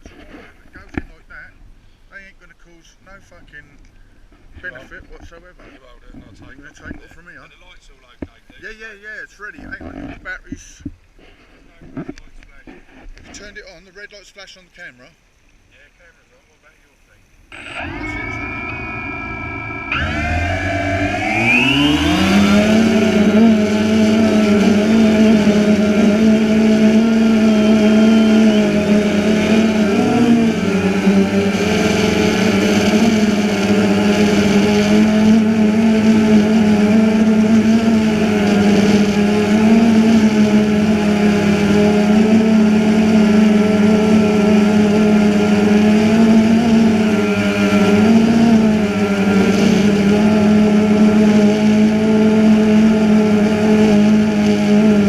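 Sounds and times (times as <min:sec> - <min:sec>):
quadcopter propellers buzzing: 0:17.5 - 0:55.0.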